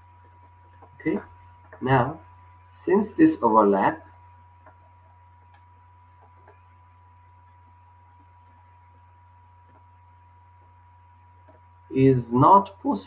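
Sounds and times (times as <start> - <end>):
low electrical hum: 0.0 - 13.0
faint clicks: 0.2 - 1.0, 4.0 - 6.8, 8.0 - 8.7, 9.6 - 11.6.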